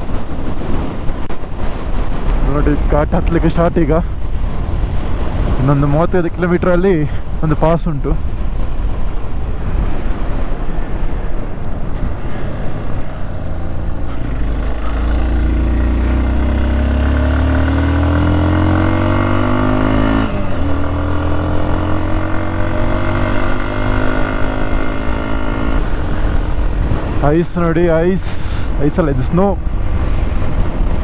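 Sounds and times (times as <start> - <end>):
wind on microphone: 0.0 - 31.0
motorcycle engine accelerating: 8.6 - 27.4.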